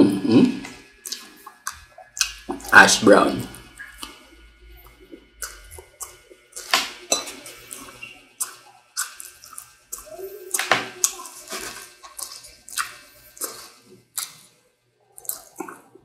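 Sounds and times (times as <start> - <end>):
wet chewing and mouth smacks: 1.0 - 2.7, 3.7 - 4.2, 4.8 - 6.9, 7.6 - 16.0.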